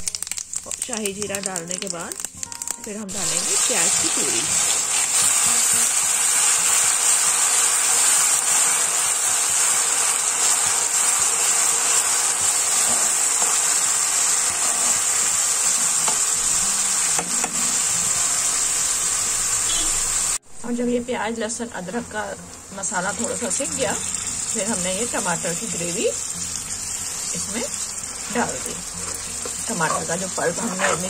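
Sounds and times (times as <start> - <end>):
paste sizzling in hot oil: 0.0 - 20.4, 22.4 - 31.0
metal spoon stirring in pan: 27.8 - 31.0.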